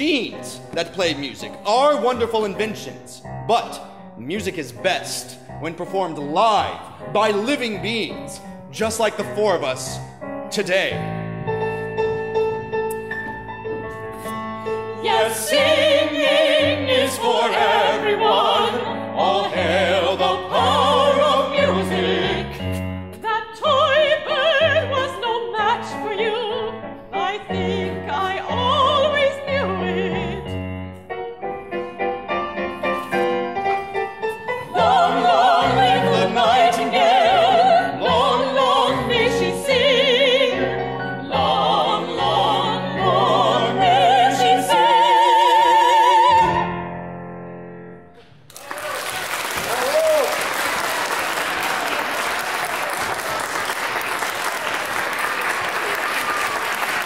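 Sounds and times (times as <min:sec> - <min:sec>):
piano accompaniment: 0:00.0 - 0:48.5
operatic voices singing: 0:14.8 - 0:26.7, 0:34.4 - 0:46.7.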